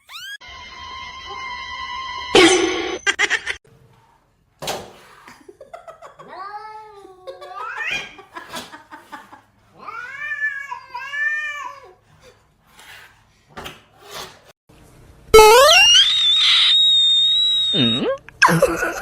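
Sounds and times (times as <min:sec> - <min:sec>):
loud rising-pitch sound: 0:15.4 - 0:18.2.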